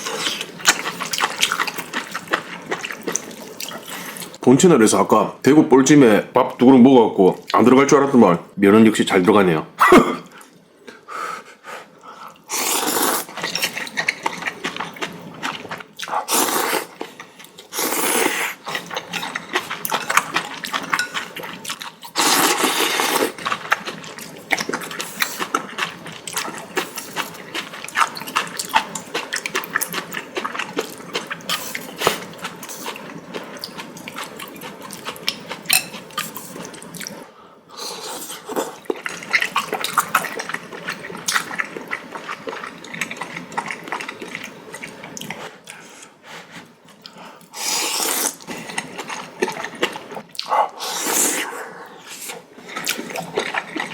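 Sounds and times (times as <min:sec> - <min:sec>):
noodles being slurped: 0:12.5 - 0:35.3, 0:47.5 - 0:50.2
wet chewing and mouth clicks: 0:18.7 - 0:37.2, 0:48.2 - 0:50.8, 0:52.7 - 0:53.9.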